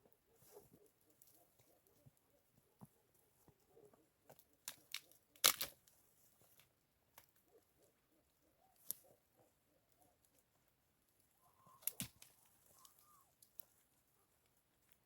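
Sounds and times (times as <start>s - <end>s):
crunching and snapping: 2.7s - 7.9s, 11.6s - 15.0s.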